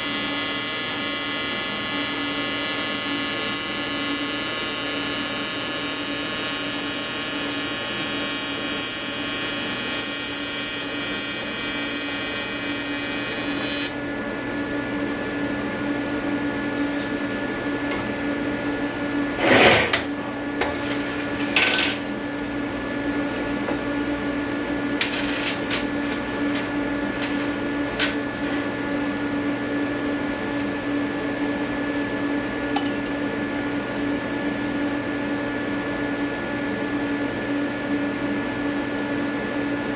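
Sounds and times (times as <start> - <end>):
welding arc buzzing: 0.0 - 14.0
steady hum: 0.0 - 14.5.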